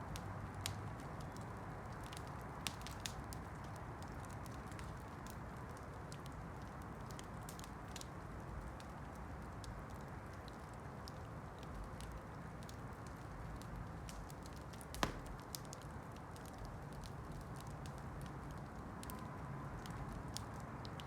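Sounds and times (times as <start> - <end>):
campfire crackling and snapping: 0.0 - 21.0.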